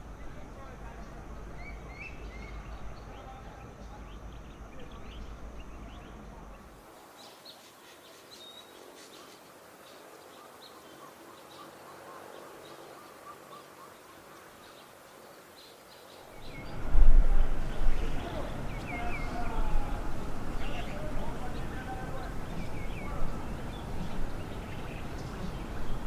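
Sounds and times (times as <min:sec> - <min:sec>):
birds chirping: 0:00.0 - 0:26.0
wind rumble on microphone: 0:16.3 - 0:26.0.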